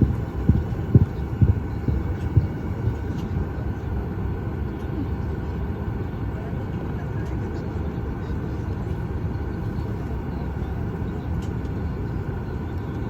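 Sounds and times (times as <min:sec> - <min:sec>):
short dull thumps: 0:00.0 - 0:03.0
aircraft cabin rumble: 0:00.0 - 0:13.0.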